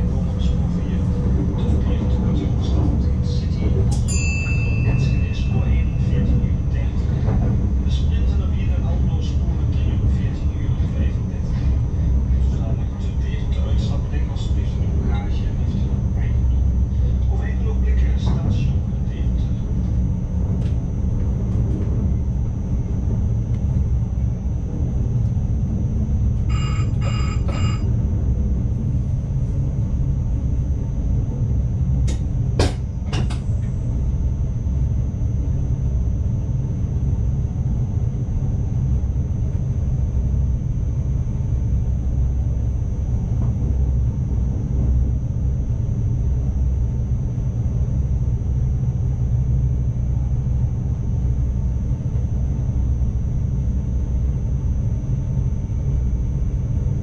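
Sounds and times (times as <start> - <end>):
high whine: 0.0 - 57.0
train cab rumble: 0.0 - 57.0
short beeps: 26.5 - 27.9.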